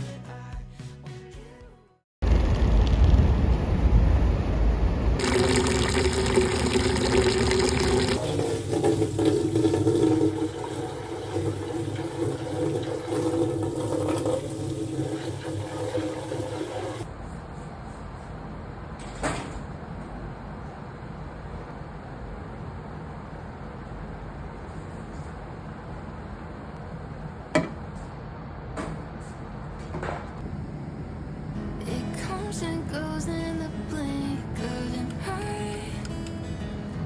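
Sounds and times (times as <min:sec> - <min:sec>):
water rushing and splashing: 0:05.2 - 0:17.0.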